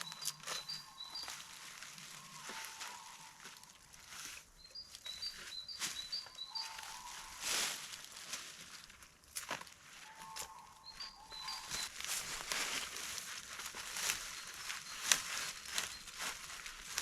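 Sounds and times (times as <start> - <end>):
faint whistled notes: 10.0 - 12.0.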